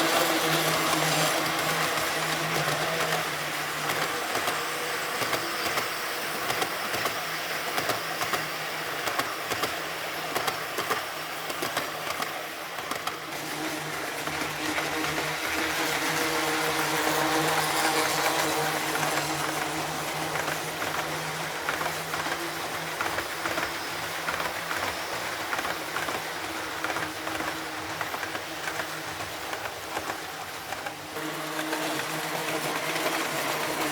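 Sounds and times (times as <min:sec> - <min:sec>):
model train motor hum: 0:00.0 - 0:33.9.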